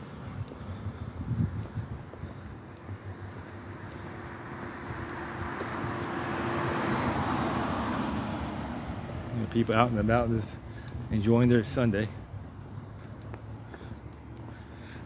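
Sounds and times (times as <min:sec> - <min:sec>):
car driving past: 0:03.4 - 0:11.0.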